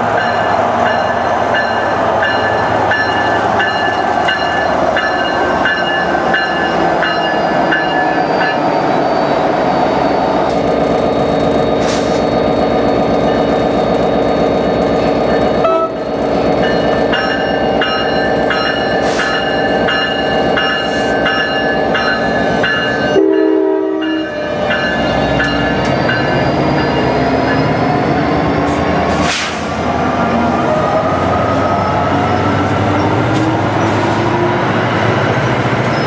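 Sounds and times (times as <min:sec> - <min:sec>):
train running by: 0:00.0 - 0:36.0
train horn: 0:15.6 - 0:16.0, 0:23.2 - 0:24.7.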